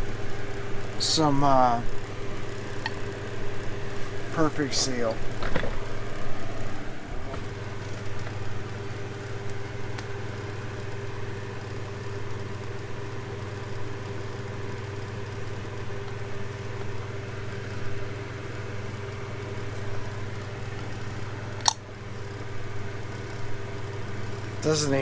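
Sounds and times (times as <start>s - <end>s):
motor humming: 0.0s - 25.0s
sharp click: 21.6s - 21.8s.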